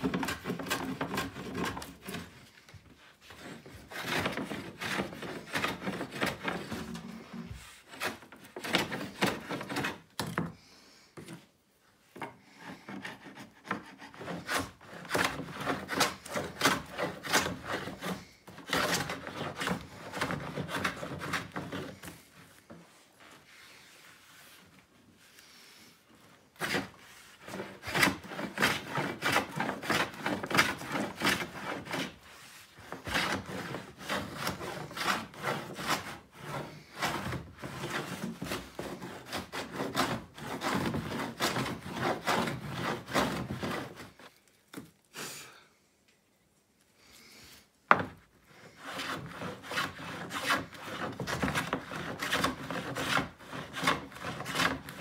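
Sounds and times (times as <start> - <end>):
plane rasping on wood: 0.0 - 2.4, 3.2 - 10.0, 12.5 - 22.2, 26.6 - 44.1, 48.6 - 55.0.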